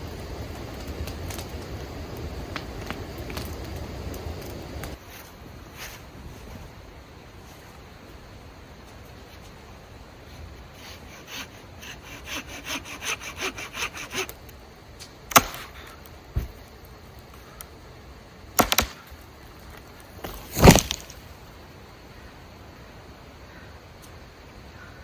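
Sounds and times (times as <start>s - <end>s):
wood cracking: 0.4s - 5.0s, 15.3s - 17.3s, 18.6s - 21.4s
hand saw cutting wood: 10.8s - 14.4s.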